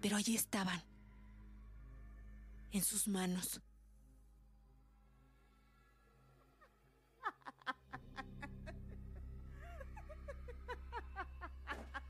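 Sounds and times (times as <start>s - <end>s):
low music drone: 0.0s - 7.0s, 7.7s - 12.0s
laughter sound effect: 7.2s - 12.0s.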